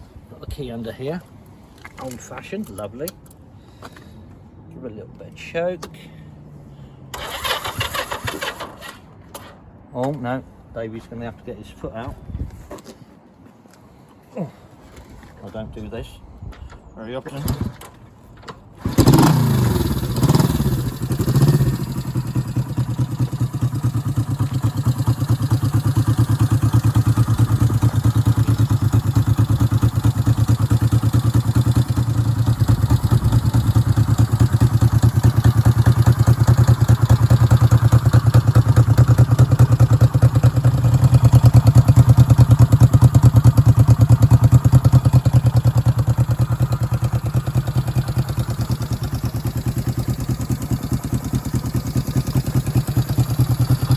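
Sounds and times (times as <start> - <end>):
motorcycle engine starting and running: 7.1 - 9.5, 17.4 - 53.9.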